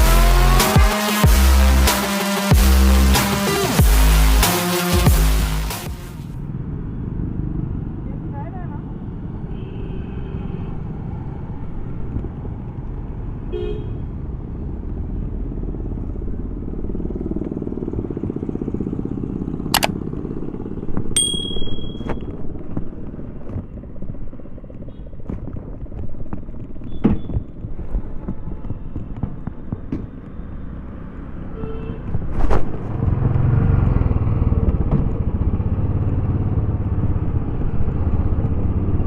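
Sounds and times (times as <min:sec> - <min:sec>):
motorcycle engine thumping: 0:19.6 - 0:22.3, 0:34.5 - 0:35.6
sharp click: 0:19.7 - 0:20.0
short high-pitched beep: 0:21.2 - 0:22.2.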